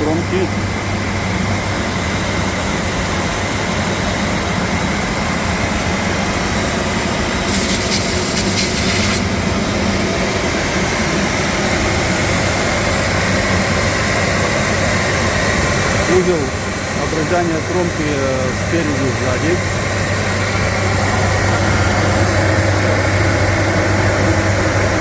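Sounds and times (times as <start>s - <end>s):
machine hum with whine: 0.0s - 25.0s
hiss: 7.4s - 9.3s.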